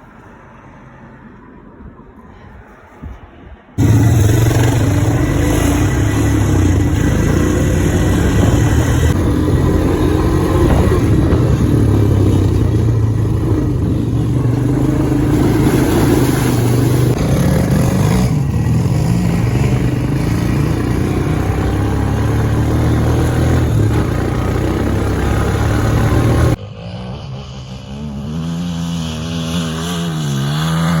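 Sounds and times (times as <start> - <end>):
vehicle engine running: 3.8 - 26.6.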